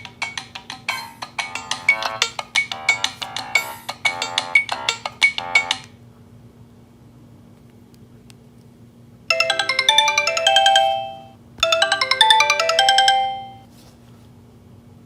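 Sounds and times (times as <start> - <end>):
chiming phone ringtone: 1.5 - 5.8, 9.3 - 13.7.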